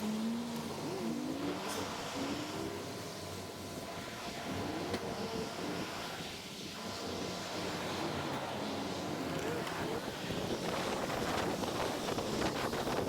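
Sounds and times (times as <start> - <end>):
wind and road noise: 4.1 - 13.0.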